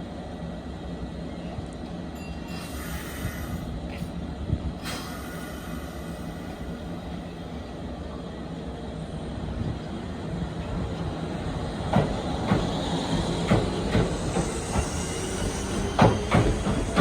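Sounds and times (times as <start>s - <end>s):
electric train pulling away: 10.6s - 17.0s.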